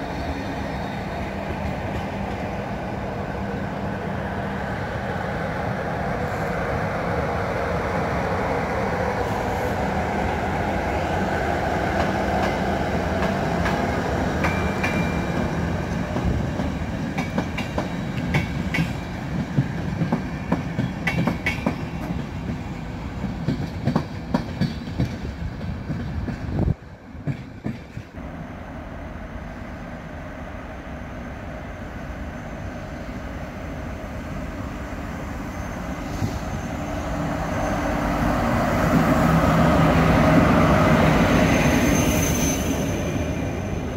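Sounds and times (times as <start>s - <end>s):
train rumbling past: 0.0s - 43.9s.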